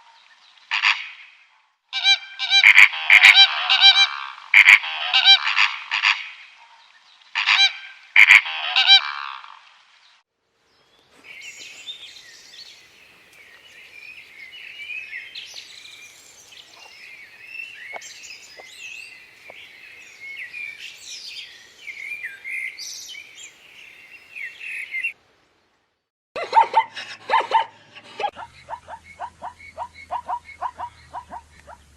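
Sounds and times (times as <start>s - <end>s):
small birds chirping: 10.7s - 25.2s, 28.3s - 31.9s.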